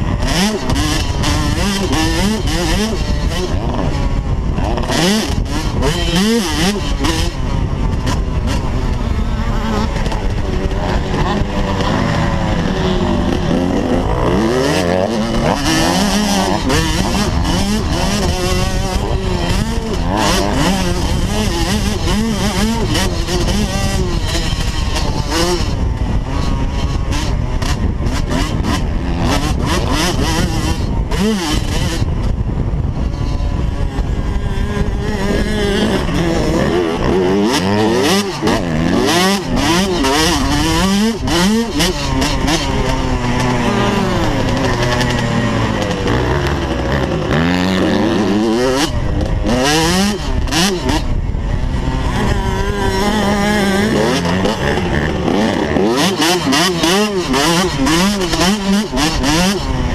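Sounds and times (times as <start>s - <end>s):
motocross bike engines revving: 0.0s - 59.9s.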